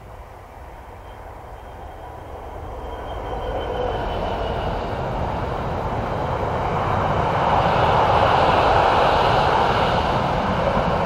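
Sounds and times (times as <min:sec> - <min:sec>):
faint high whine: 0:00.0 - 0:06.5
freight train rolling on rails: 0:00.0 - 0:11.0.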